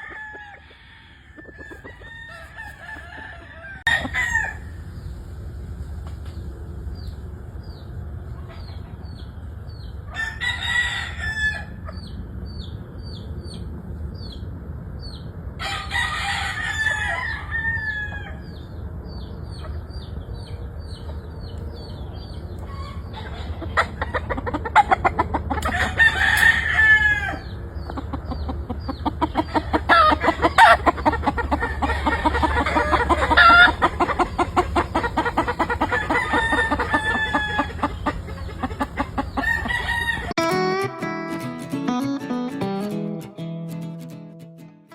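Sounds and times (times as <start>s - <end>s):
roosters crowing: 0.0s - 5.2s, 10.1s - 12.1s, 15.6s - 18.8s, 22.6s - 40.5s
fast clucking: 1.4s - 4.1s, 22.7s - 26.7s, 27.4s - 40.4s.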